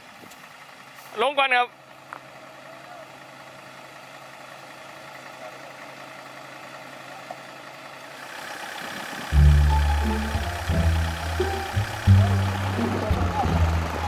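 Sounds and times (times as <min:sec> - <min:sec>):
engine idling: 0:00.0 - 0:14.0
loud deep music: 0:09.4 - 0:14.0.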